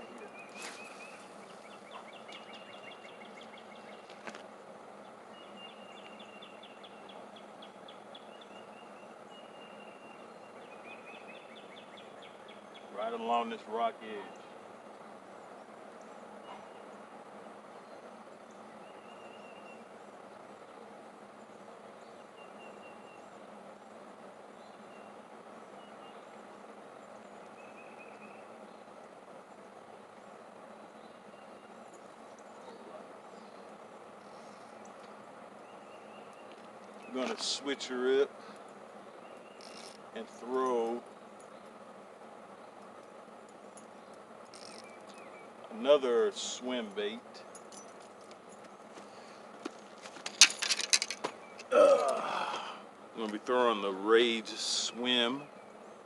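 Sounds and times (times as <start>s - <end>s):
steady background hiss: 0.0s - 56.0s
high rhythmic chirping call: 5.0s - 17.1s
high bird chirps: 38.4s - 41.8s.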